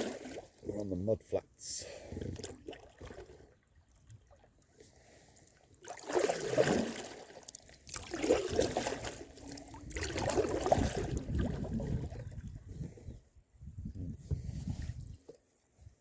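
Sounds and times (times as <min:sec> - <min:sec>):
canoe paddle strokes in water: 0:02.4 - 0:12.7.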